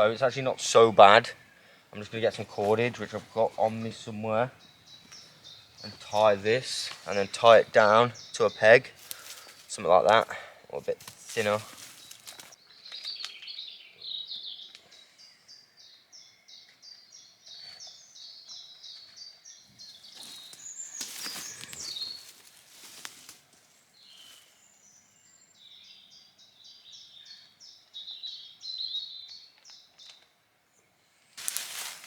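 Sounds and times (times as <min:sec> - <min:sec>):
small songbird singing: 0:00.0 - 0:23.0, 0:24.0 - 0:30.9
rustles and knocks of tarp: 0:11.0 - 0:12.6, 0:20.2 - 0:23.6, 0:31.4 - 0:32.0.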